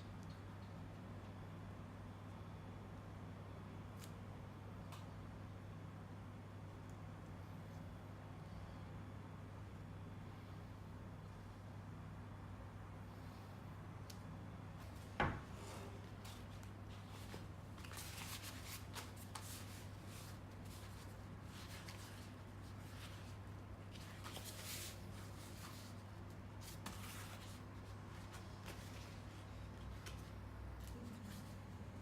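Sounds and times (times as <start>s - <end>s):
steady low hum: 0.0s - 32.0s
soft rustling and rubbing: 14.8s - 31.8s.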